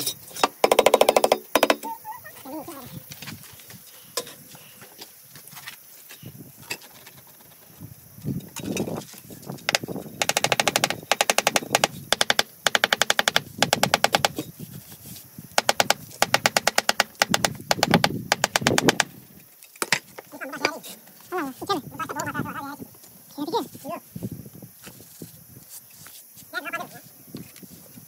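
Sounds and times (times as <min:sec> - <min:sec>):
rapid mechanical clicking: 0:09.7 - 0:14.3.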